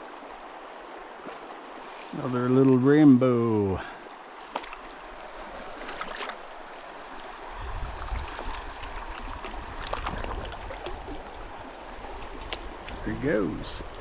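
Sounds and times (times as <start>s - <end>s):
water splashes and clicks: 0.0s - 0.5s, 1.2s - 3.1s, 4.3s - 5.0s, 5.6s - 6.9s, 7.8s - 11.5s, 12.1s - 13.2s
mountain stream running: 0.0s - 14.0s.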